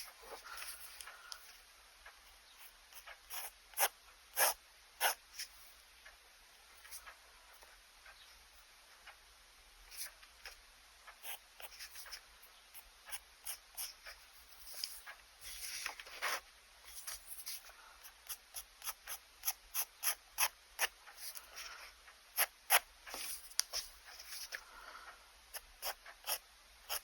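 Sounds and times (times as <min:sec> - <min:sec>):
pen nib scratching on paper: 0:02.6 - 0:05.7, 0:11.1 - 0:24.6, 0:25.5 - 0:27.0.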